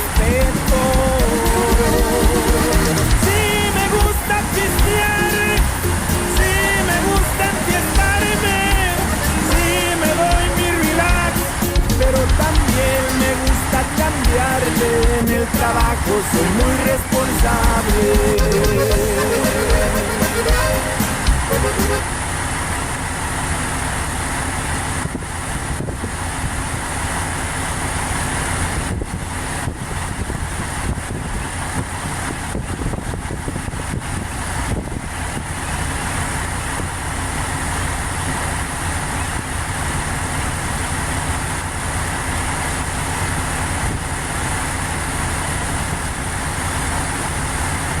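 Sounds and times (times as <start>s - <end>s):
wind buffeting microphone: 28.7s - 35.6s
strong wind blowing: 28.8s - 35.1s.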